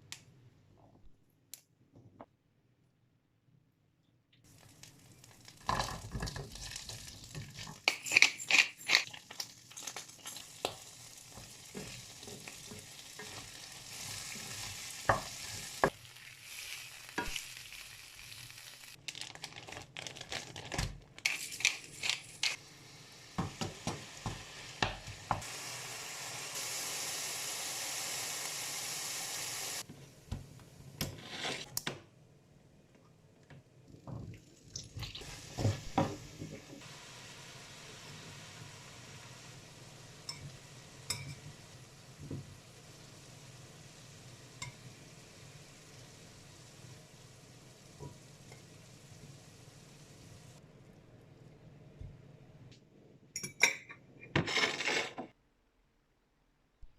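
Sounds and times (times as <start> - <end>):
food sizzling in frying pan: 4.5 - 19.5, 21.3 - 29.9, 35.0 - 50.6
utensil scraping pan: 31.1 - 31.7, 54.3 - 55.3.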